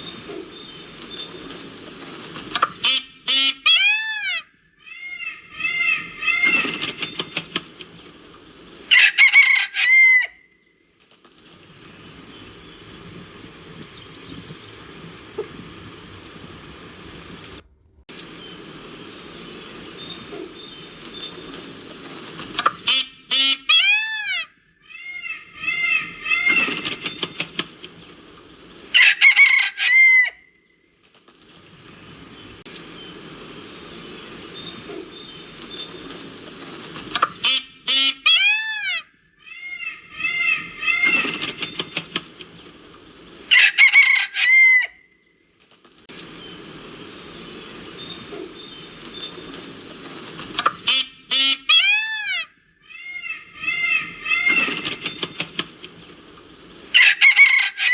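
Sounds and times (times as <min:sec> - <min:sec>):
peacock calling: 0:00.0 - 0:08.2, 0:08.8 - 0:10.7, 0:19.6 - 0:30.6, 0:34.1 - 0:45.3, 0:47.4 - 0:57.9
insects chirring: 0:00.0 - 0:57.9.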